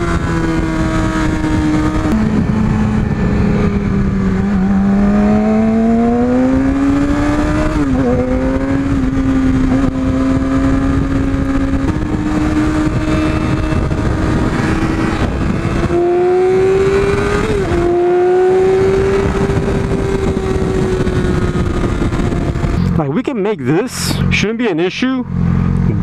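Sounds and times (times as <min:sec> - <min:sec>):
motorcycle engine at high revs: 0:00.0 - 0:23.0, 0:25.3 - 0:26.0
wind rushing past: 0:00.2 - 0:23.0.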